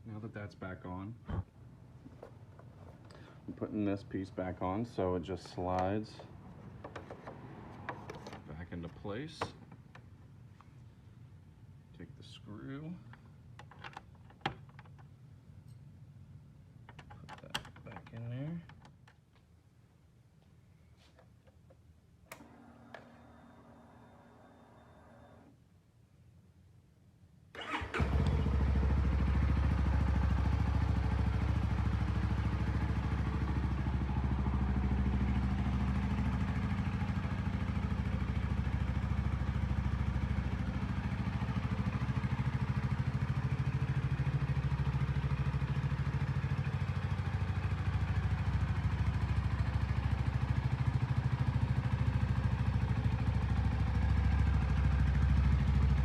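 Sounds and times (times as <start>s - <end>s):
motorcycle engine starting and idling: 2.2s - 10.4s, 22.3s - 25.6s, 27.5s - 56.0s.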